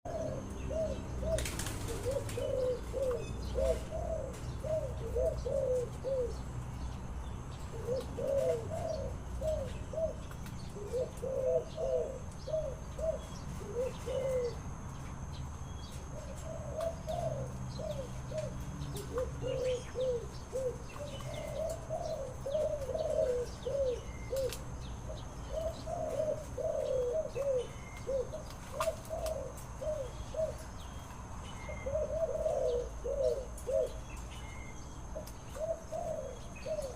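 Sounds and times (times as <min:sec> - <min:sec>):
dove cooing: 0:00.0 - 0:06.6, 0:07.6 - 0:14.8, 0:15.8 - 0:31.0, 0:31.6 - 0:36.9.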